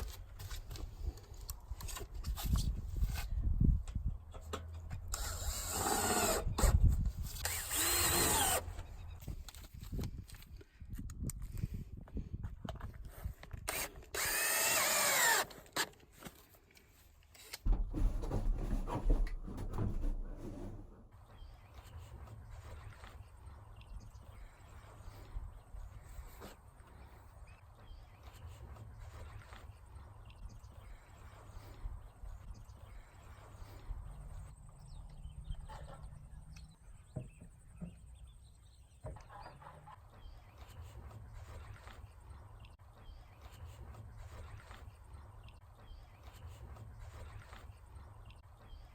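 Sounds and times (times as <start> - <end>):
power drill whining: 5.1 - 6.8, 7.4 - 9.0, 13.7 - 15.9
knocks and clatter of handling: 17.6 - 21.0.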